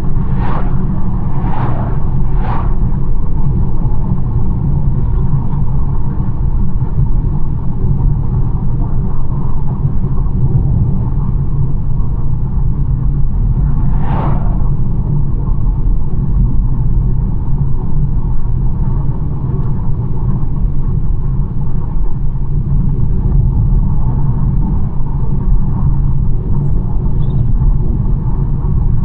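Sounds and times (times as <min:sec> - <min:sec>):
brief whooshes: 0:00.0 - 0:03.2, 0:13.5 - 0:14.9
car engine: 0:00.0 - 0:04.4, 0:11.7 - 0:15.8
road and tyre rumble: 0:00.0 - 0:29.0.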